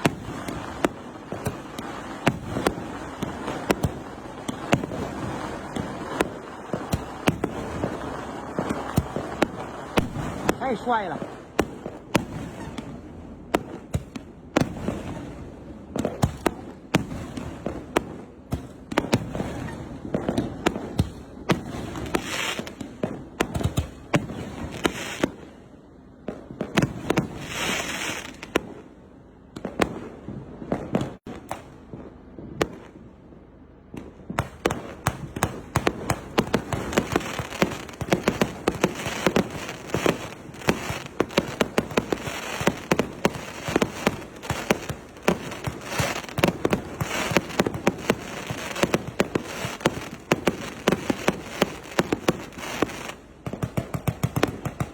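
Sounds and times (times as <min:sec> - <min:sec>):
firework hiss: 0:00.0 - 0:12.8, 0:21.6 - 0:23.3, 0:24.4 - 0:25.5, 0:26.8 - 0:28.6, 0:34.4 - 0:53.2
rapid small firework reports: 0:00.0 - 0:33.1, 0:33.9 - 0:54.9.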